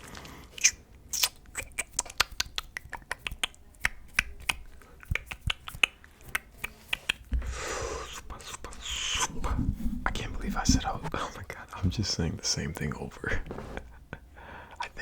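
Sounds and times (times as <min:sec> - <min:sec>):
mouth clicks and pops: 0:00.6 - 0:07.3.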